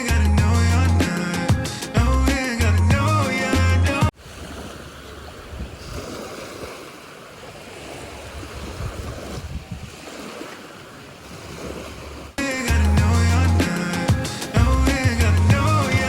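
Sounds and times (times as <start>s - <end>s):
sea surf washing ashore: 4.1s - 16.0s
wind buffeting microphone: 4.5s - 6.8s, 8.1s - 10.3s.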